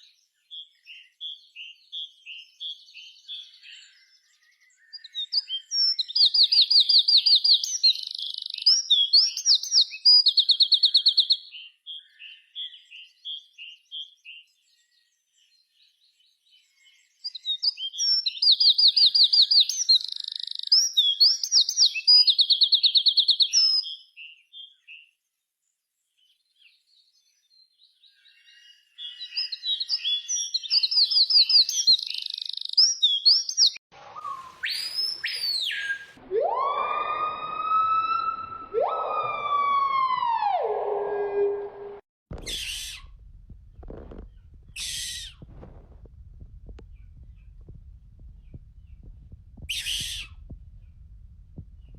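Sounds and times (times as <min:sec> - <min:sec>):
songbird trilling and chirping: 0:00.5 - 0:15.0, 0:16.6 - 0:25.0, 0:27.9 - 0:36.2, 0:46.8 - 0:51.1
whistled tone gliding up: 0:34.0 - 0:43.0.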